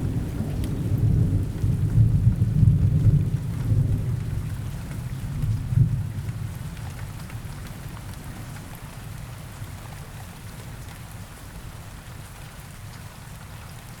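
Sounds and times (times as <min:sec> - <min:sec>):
deep rumble of thunder: 0:00.0 - 0:07.6
rain falling in forest: 0:00.0 - 0:14.0.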